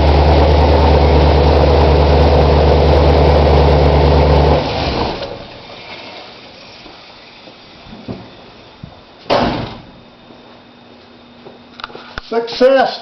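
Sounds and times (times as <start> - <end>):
engine idling and winding down: 0.0 - 5.6.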